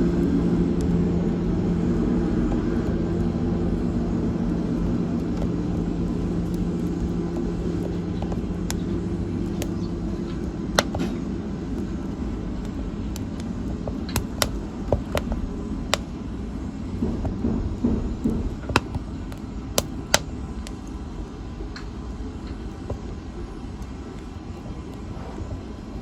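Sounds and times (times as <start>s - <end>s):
fire crackling: 0.0s - 26.0s
low rumble of flames: 0.0s - 26.0s
sharp pops: 5.2s - 16.2s, 18.5s - 20.9s.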